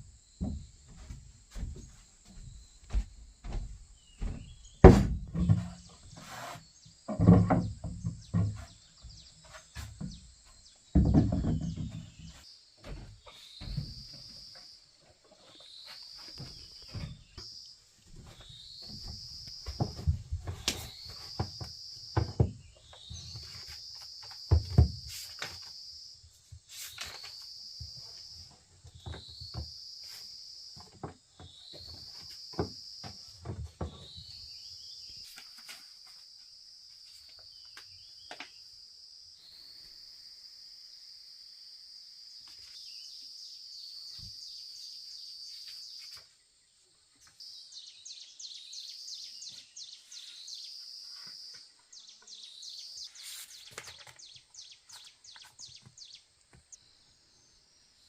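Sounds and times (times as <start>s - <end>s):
dull knocks and thumps: 0.4s - 6.2s, 7.0s - 14.4s, 18.1s - 25.2s.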